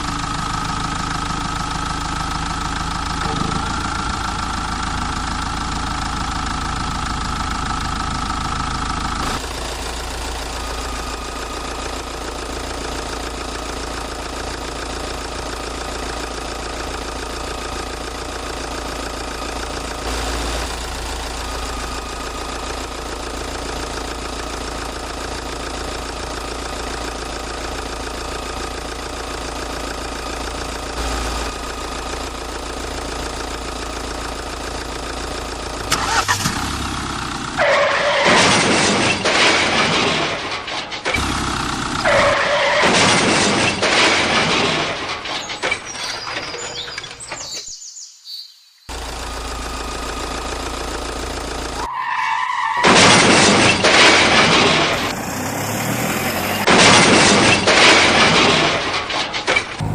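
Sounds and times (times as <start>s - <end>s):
vehicle engine idling: 0.0s - 38.2s, 38.8s - 47.5s, 48.9s - 59.9s
loud rough noise: 52.8s - 59.9s.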